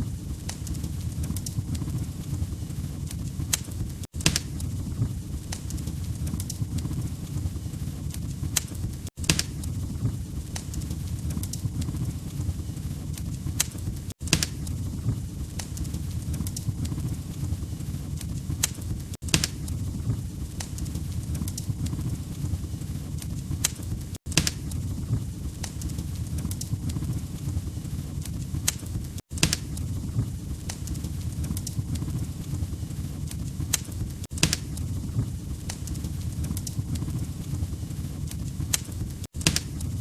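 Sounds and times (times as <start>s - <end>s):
fire crackling and popping: 0.0s - 40.0s
low rumble of flames: 0.0s - 40.0s.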